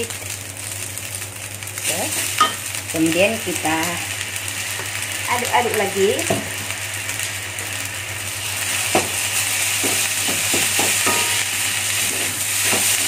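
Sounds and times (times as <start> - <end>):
rice sizzling in a wok: 0.0 - 13.0
spatula knocking against a wok: 9.8 - 11.4.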